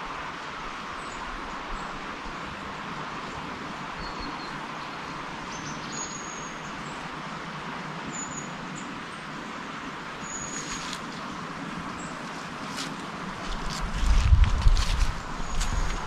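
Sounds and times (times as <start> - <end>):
steady background hiss: 0.0 - 16.0
small bird whistling: 10.2 - 10.9.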